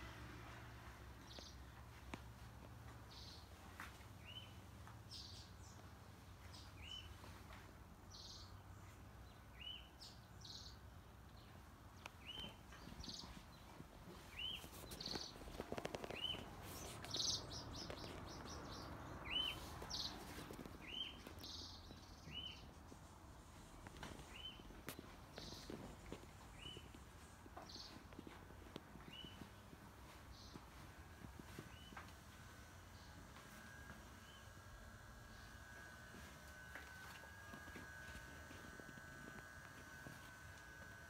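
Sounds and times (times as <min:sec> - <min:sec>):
footsteps: 0:23.6 - 0:34.4, 0:35.3 - 0:41.0.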